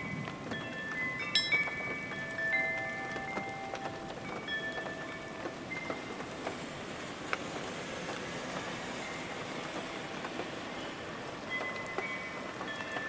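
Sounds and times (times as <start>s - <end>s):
faint chime tones: 0.0s - 6.2s, 11.5s - 13.0s
steady rain: 0.0s - 13.0s.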